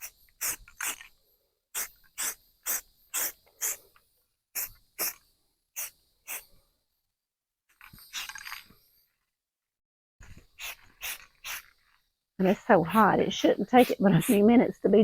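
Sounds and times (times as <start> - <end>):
aerosol spray can spraying: 0.0 - 1.1, 1.8 - 3.8, 4.6 - 5.2, 5.8 - 6.6, 10.3 - 11.8, 12.5 - 14.8.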